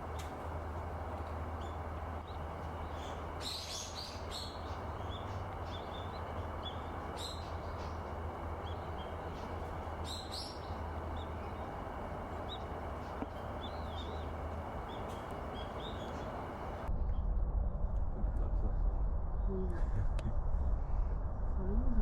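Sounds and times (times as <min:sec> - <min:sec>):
small birds chirping: 0:00.0 - 0:16.9
low background rumble: 0:00.0 - 0:22.0.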